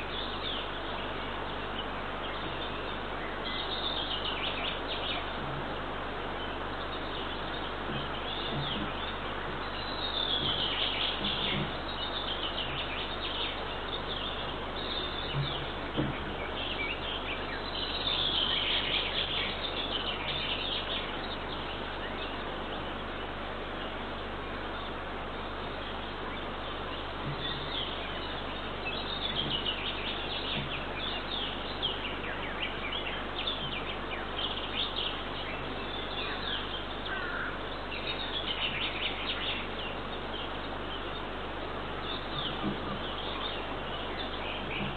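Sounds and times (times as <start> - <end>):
songbirds singing trilled phrase: 0.0 - 44.9
steady outdoor hiss: 0.0 - 44.9
faint low knocks: 7.8 - 12.9, 14.8 - 17.2, 26.8 - 31.6, 44.6 - 44.9.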